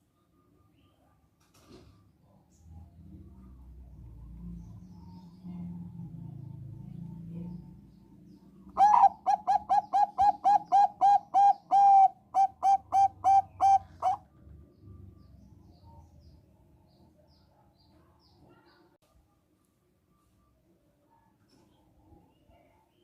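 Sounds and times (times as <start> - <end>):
dove cooing: 8.7 - 14.2.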